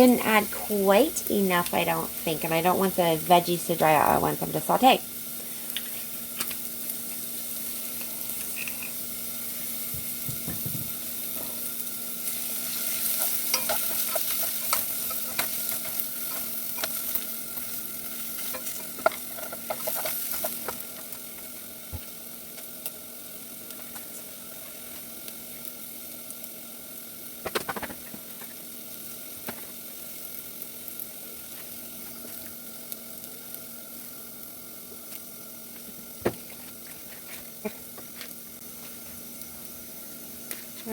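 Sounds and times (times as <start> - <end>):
vegetables sizzling in oil: 0.0 - 40.9
utensil scraping a pan: 8.1 - 9.0, 18.3 - 20.8.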